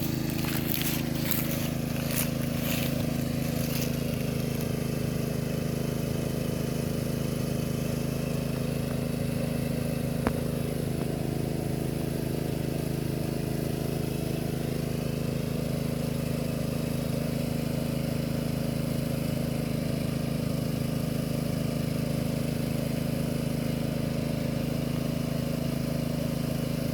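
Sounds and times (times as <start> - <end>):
motor humming: 0.0 - 12.8.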